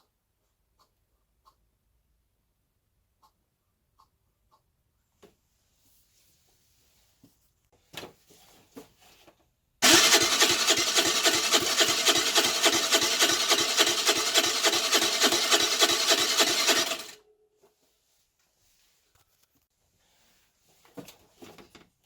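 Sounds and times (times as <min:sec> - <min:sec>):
electric starter cranking engine: 0:09.8 - 0:17.2.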